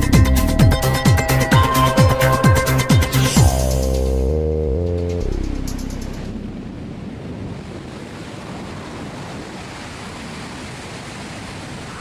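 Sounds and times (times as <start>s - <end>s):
wind on microphone: 6.1s - 12.0s.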